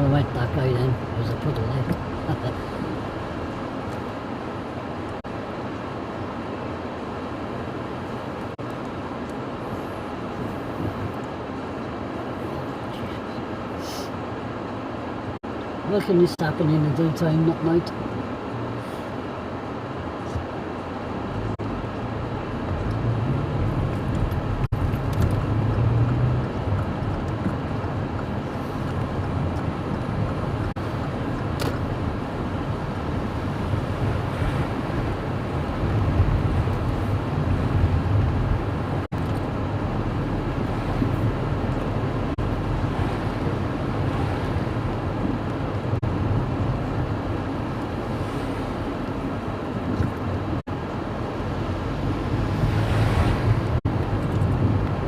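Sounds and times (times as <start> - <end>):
vehicle and road rumble: 0.0 - 55.0.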